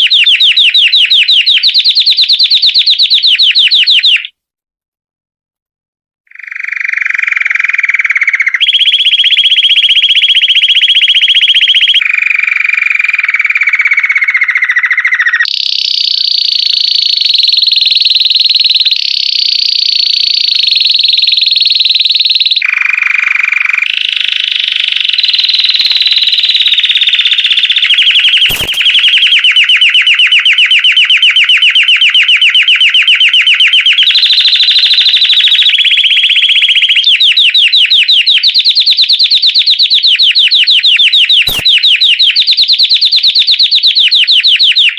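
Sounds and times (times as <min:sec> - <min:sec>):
canary trilling song: 0:00.0 - 0:04.4, 0:06.3 - 0:12.2, 0:12.8 - 0:44.9
sharp click: 0:28.2 - 0:29.4, 0:41.4 - 0:41.8.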